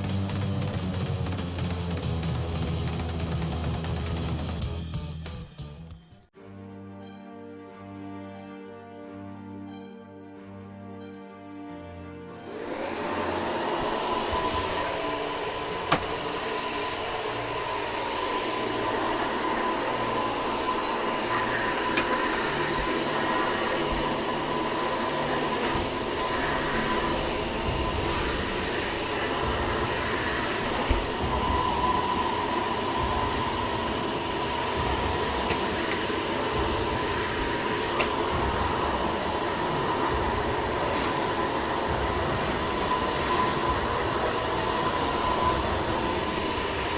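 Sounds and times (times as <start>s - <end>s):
vacuum cleaner running: 12.3s - 46.9s.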